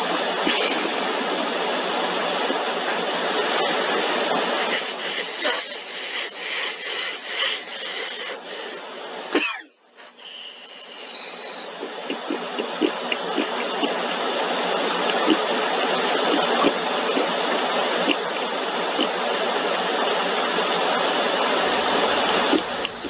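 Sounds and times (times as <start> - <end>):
car wash spraying water: 21.6 - 23.0.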